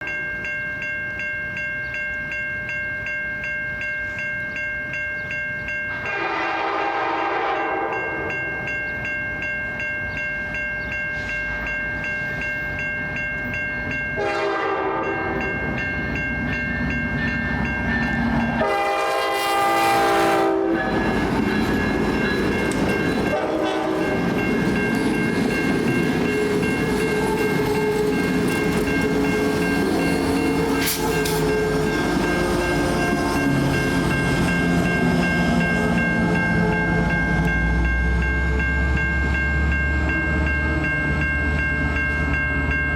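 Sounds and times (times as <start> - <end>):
crossing bell ringing: 0.0 - 42.9
locomotive air horn blasts: 6.1 - 8.0, 14.2 - 15.4, 18.6 - 21.0, 23.3 - 24.3, 30.2 - 33.4
train wheels and engine rolling by: 7.8 - 42.9.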